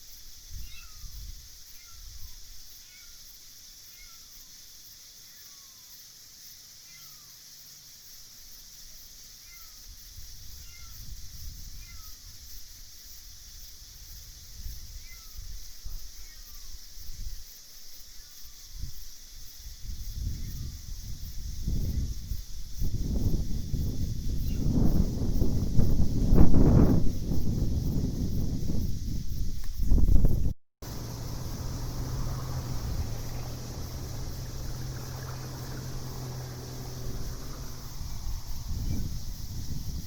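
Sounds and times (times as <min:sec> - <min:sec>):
insects chorus: 0:00.0 - 0:40.0
low rumble: 0:30.9 - 0:40.0.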